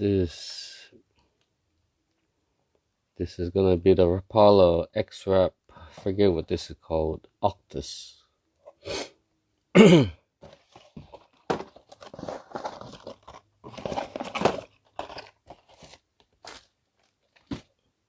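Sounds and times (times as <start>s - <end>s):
plastic packaging crinkling: 10.6s - 17.8s.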